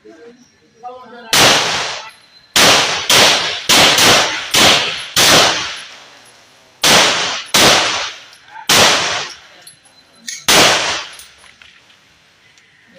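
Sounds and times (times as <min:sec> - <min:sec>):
gunshots: 0:01.3 - 0:06.0, 0:06.8 - 0:09.4, 0:10.5 - 0:11.3.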